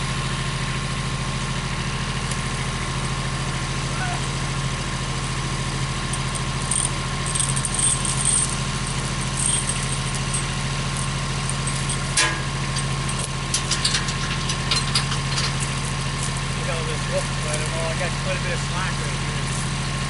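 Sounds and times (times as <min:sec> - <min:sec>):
engine idling: 0:00.0 - 0:20.0
light clinks: 0:06.1 - 0:16.4.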